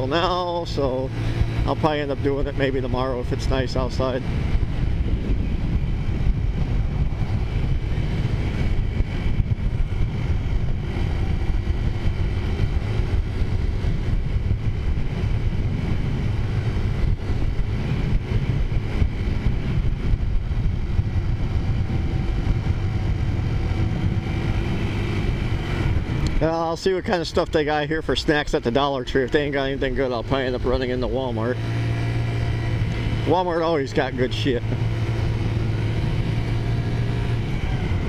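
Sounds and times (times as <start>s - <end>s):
wind rumbling on microphone: 0.0s - 38.0s
scooter engine running: 28.2s - 38.0s.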